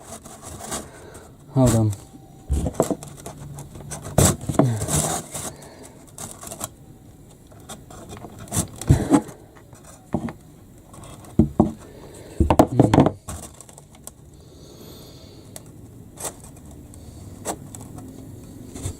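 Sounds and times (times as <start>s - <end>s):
timber boards knocking and rubbing: 3.8s - 5.3s, 8.2s - 9.4s, 11.2s - 11.8s, 12.4s - 13.4s.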